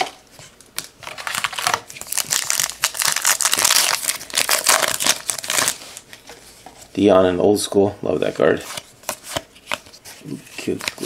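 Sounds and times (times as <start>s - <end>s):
card pack wrapper crinkling: 0.8s - 6.1s.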